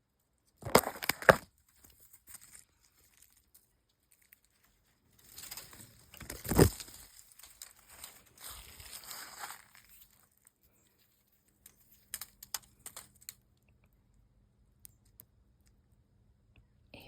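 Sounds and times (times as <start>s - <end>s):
faint scratching and crackling: 0.1s - 13.4s.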